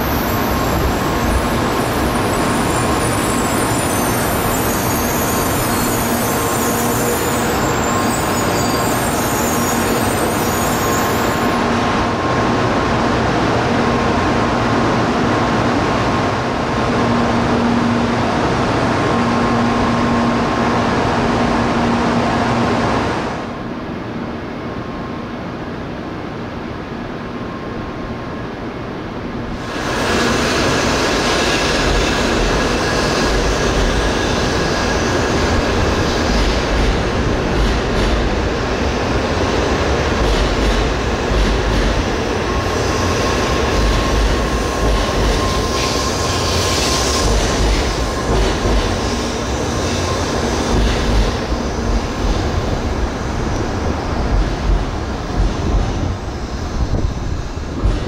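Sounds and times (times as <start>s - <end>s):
high-speed train rolling noise: 0.0s - 58.0s
uneven train clacks: 29.6s - 58.0s.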